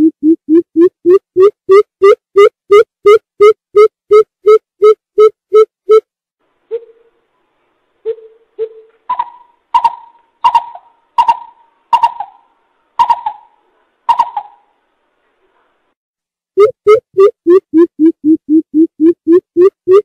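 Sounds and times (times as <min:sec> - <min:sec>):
coucal hooting: 0:08.1 - 0:14.7.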